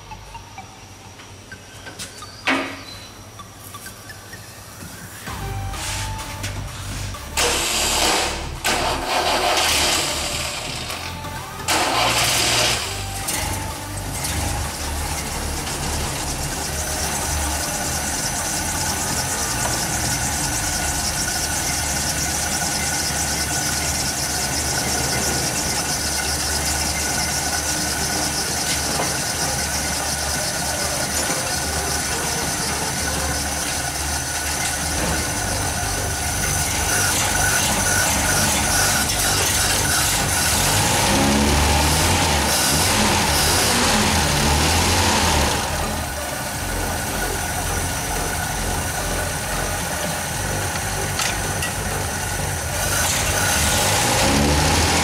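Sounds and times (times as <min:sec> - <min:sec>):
thin high-pitched whine: 0:00.0 - 0:55.0
car engine idling: 0:03.3 - 0:55.0.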